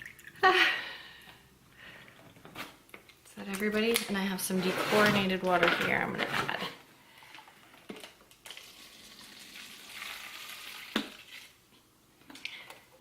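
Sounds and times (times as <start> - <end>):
water pouring into a container: 8.5 - 11.6.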